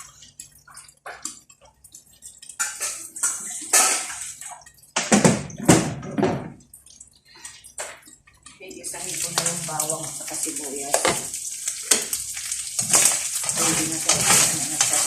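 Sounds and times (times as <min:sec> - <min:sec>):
water running in a sink: 0:00.0 - 0:15.0
dishes and utensils knocking: 0:05.0 - 0:06.6.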